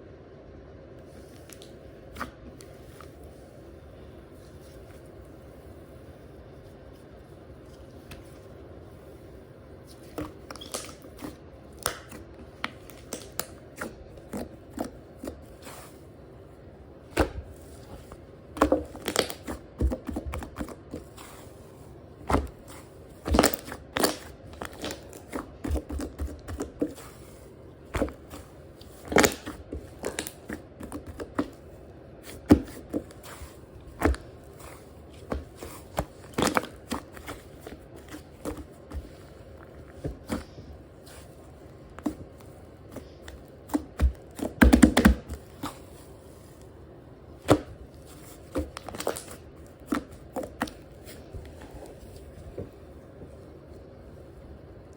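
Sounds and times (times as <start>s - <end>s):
slime squishing and popping: 10.1s - 15.4s, 18.5s - 21.2s, 22.2s - 27.1s, 27.9s - 31.6s, 32.2s - 41.2s, 48.4s - 50.8s.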